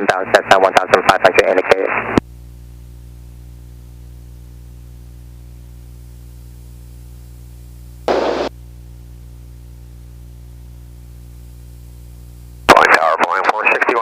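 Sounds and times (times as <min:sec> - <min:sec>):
burst of static: 0:08.0 - 0:08.5, 0:12.7 - 0:14.0.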